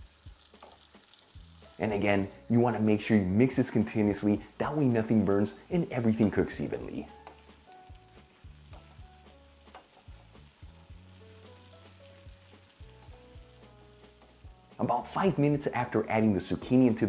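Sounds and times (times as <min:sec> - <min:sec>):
vegetables sizzling in a frying pan: 0:00.0 - 0:17.0
wooden spoon scraping a pan: 0:06.2 - 0:14.6.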